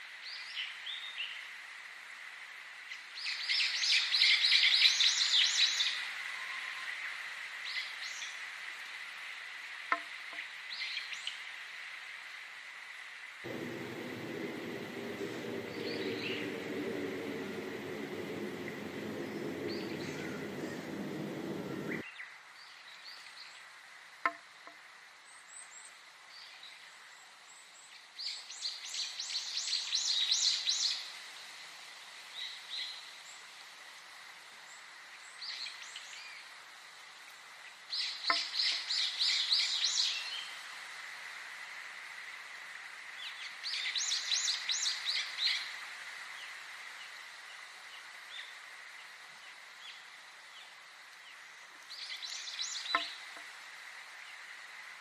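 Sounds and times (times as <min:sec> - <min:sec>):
background sound: 0:13.5 - 0:22.0
bird single chirps: 0:13.5 - 0:22.0.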